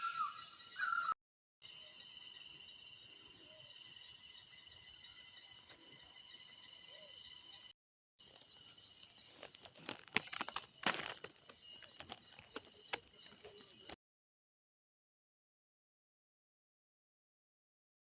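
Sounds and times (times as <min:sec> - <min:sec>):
crickets chirring: 0:00.0 - 0:14.0
crackles and rustles: 0:09.0 - 0:14.0.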